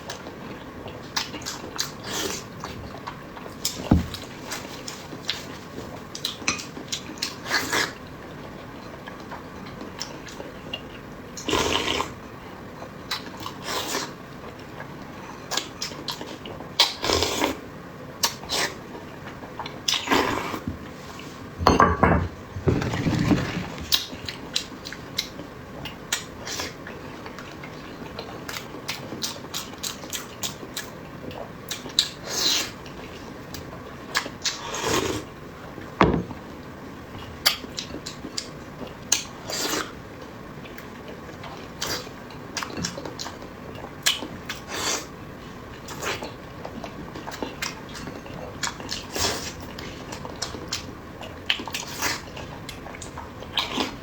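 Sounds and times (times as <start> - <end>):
chewing and mouth noises: 45.8 - 54.0.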